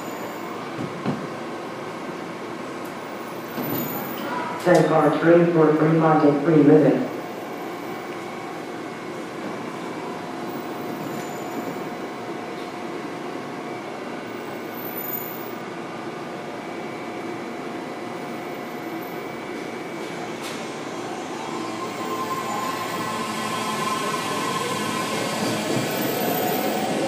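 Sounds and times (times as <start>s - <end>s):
rising tone of arriving train: 0.0s - 27.0s
steady train tones: 0.0s - 27.0s
train wheels rumbling on rail: 19.4s - 27.0s.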